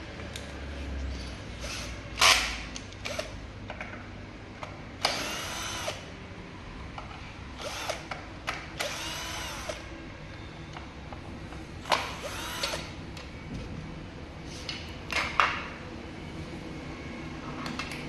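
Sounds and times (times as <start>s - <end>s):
power drill spinning: 5.1s - 6.1s, 7.6s - 8.0s, 8.8s - 9.8s, 12.1s - 12.9s.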